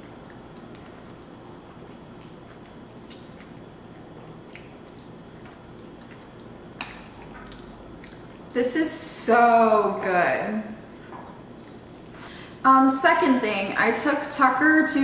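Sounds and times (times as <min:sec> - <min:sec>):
wet chewing: 0:00.0 - 0:08.6, 0:10.8 - 0:12.2.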